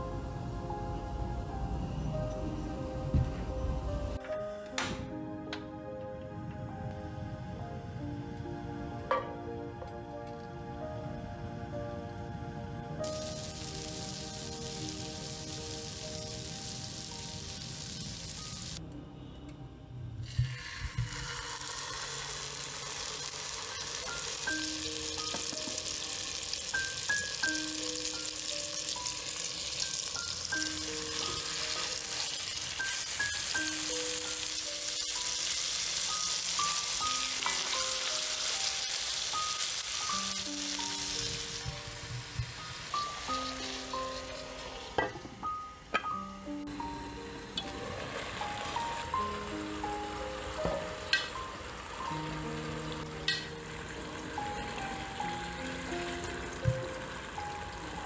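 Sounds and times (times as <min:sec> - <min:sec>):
butter sizzling in frying pan: 0:13.0 - 0:18.8, 0:20.3 - 0:45.9, 0:47.6 - 0:58.0
chicken frying: 0:13.0 - 0:18.8, 0:20.3 - 0:45.3, 0:46.7 - 0:58.0.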